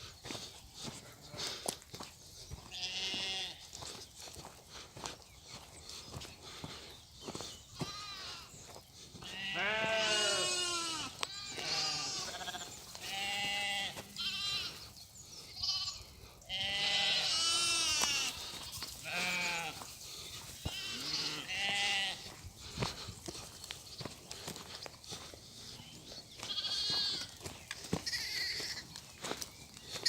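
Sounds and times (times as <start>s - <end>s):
sheep bleating: 2.7s - 3.7s, 7.8s - 8.5s, 9.2s - 14.9s, 15.5s - 22.4s, 26.4s - 27.4s, 28.0s - 28.9s.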